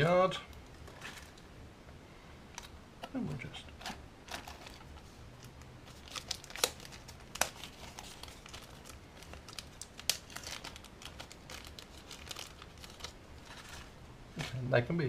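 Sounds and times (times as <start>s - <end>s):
packaging crinkling and rustling: 0.6s - 1.5s, 3.8s - 14.0s.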